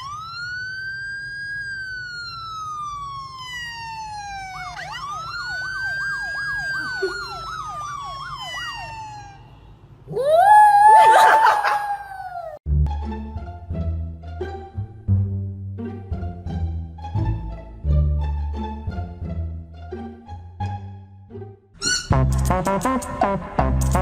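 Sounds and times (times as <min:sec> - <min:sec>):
emergency vehicle siren wailing: 0:00.0 - 0:12.6.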